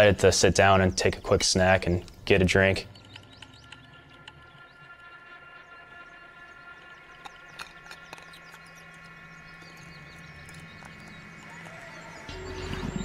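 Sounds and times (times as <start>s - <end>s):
small chirps and clicks: 1.0s - 12.3s
low hum: 1.6s - 13.0s
steady high ringing: 8.8s - 13.0s.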